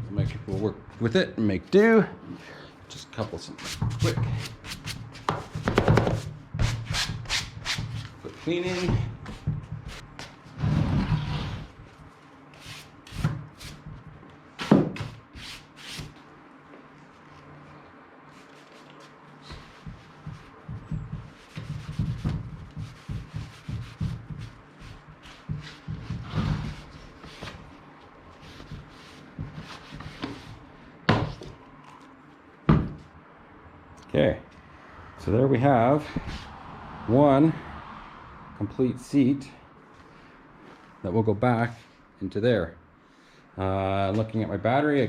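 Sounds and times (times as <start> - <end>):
rubbing and brushing upholstery: 17.0 - 30.7.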